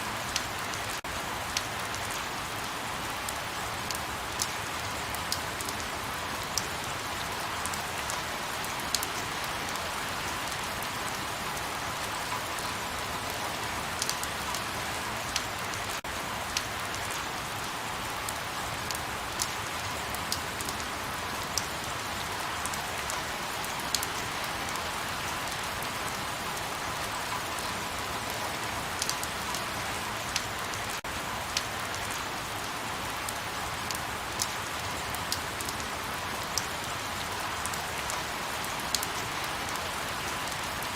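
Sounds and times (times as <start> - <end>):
raindrops ticking: 29.0 - 29.6.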